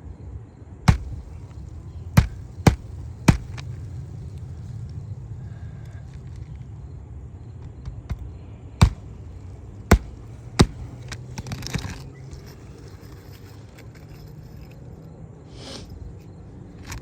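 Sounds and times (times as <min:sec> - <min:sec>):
hammer knocks on shingle roof: 0:00.9 - 0:01.6, 0:02.2 - 0:03.8, 0:07.9 - 0:09.2, 0:09.9 - 0:11.4
shingle scraping rustle: 0:00.9 - 0:06.8, 0:08.1 - 0:14.9.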